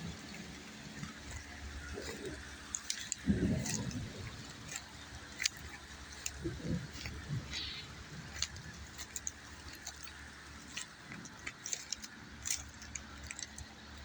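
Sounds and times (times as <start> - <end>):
close raindrop ticks: 0.0 - 14.0
rain falling: 0.0 - 14.0.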